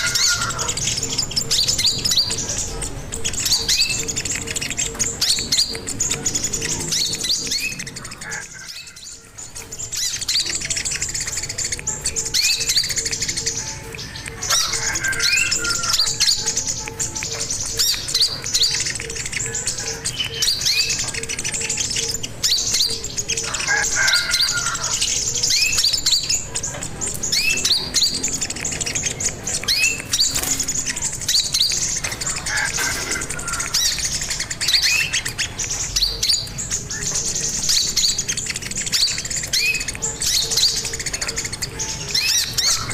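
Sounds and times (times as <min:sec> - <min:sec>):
bird chirps and trills: 0:00.0 - 0:42.9.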